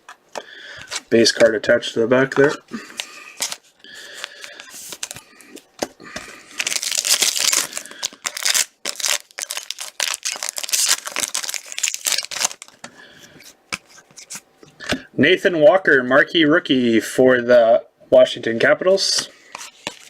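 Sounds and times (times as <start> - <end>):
foil wrapper rustling and crinkling: 2.7 - 5.6, 6.2 - 12.8.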